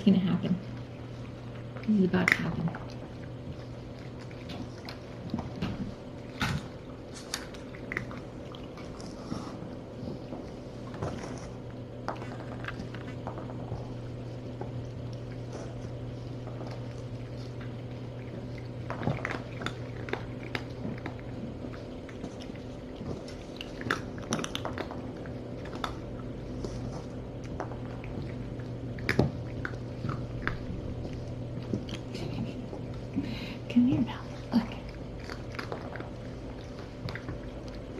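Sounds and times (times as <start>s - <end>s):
kittens crunching dry kibble: 0.0s - 37.9s
low steady hum: 0.0s - 37.9s.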